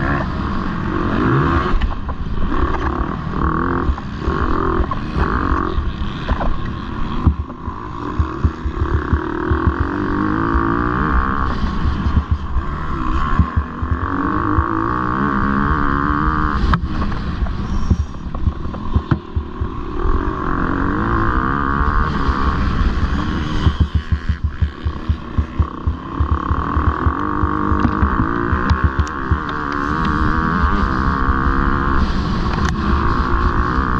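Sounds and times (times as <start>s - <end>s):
motocross bike engine revving: 0.0s - 33.9s
knocks and thumps: 8.2s - 9.9s, 12.1s - 12.5s, 16.7s - 19.7s, 23.6s - 29.6s.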